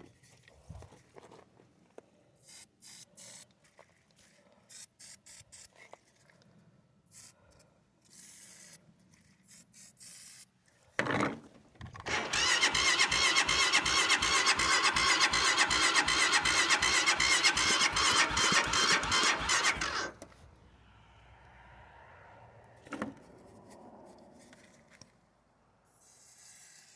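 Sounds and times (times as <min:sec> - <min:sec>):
engine cranking by starter motor: 0:12.0 - 0:20.4
whining squeal: 0:12.1 - 0:20.2.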